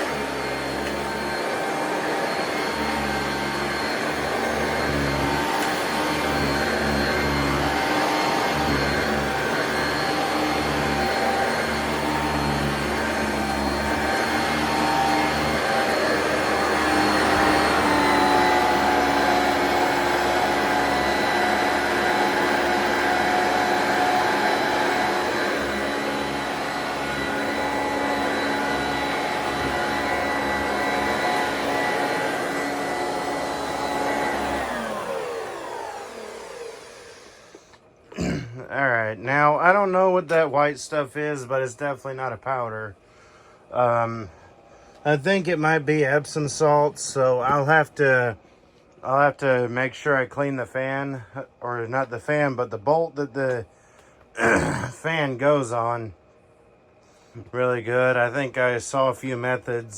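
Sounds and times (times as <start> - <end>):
vacuum cleaner running: 0.0 - 37.9, 43.3 - 48.5.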